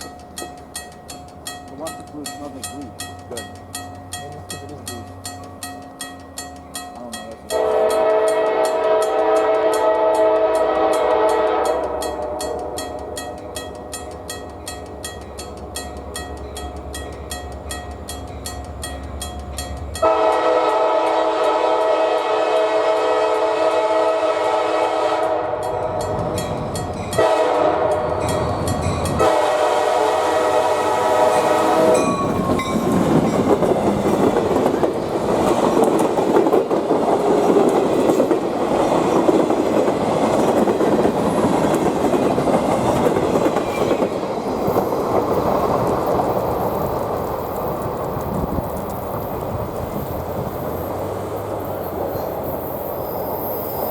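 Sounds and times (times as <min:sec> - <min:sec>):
train rolling past on rails: 0:00.0 - 0:53.9
locomotive air horn blasts: 0:07.5 - 0:12.8, 0:20.0 - 0:25.8, 0:27.2 - 0:28.3, 0:29.2 - 0:32.1.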